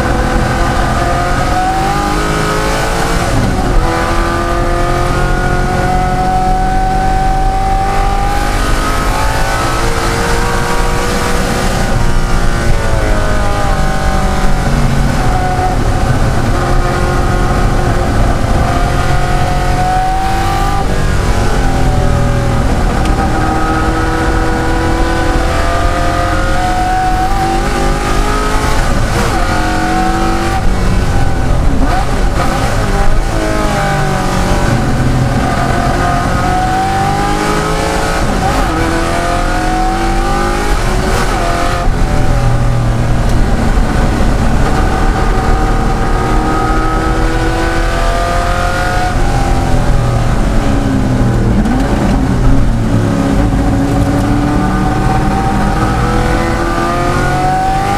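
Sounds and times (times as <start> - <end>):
racing engine accelerating: 0.0 - 57.9.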